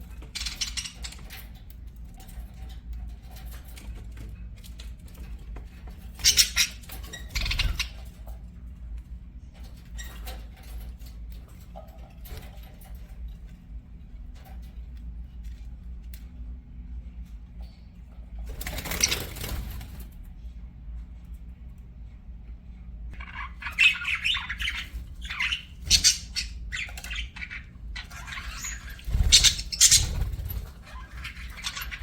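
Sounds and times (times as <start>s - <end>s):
steady low hum: 0.0s - 32.0s
small clicks and scratches in cage: 0.1s - 7.3s, 7.9s - 18.5s
budgerigar harsh calls: 23.2s - 30.3s.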